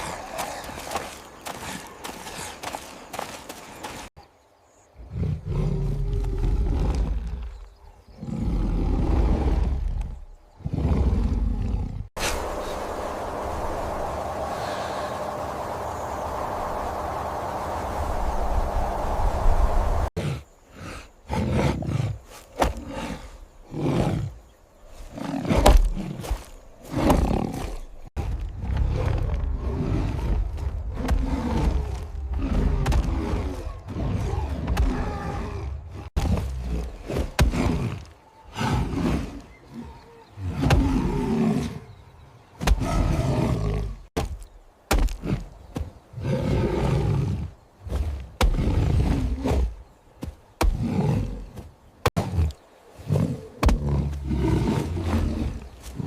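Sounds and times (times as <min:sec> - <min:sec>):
big cats roaring and growling: 0:05.0 - 0:17.0, 0:25.1 - 0:42.0, 0:46.1 - 0:49.8, 0:50.6 - 0:56.0
deep rumble: 0:12.1 - 0:20.2.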